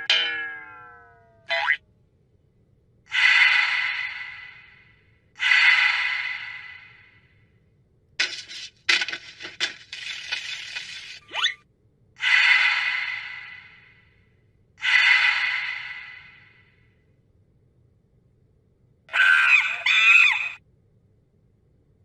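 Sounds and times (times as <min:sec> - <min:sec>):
rapid scratchy clicks: 0:08.2 - 0:11.2.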